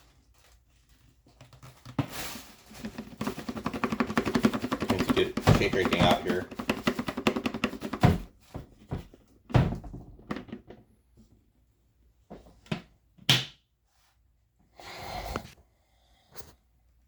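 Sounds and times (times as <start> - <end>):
plastic knocks and clunks: 1.9 - 10.9.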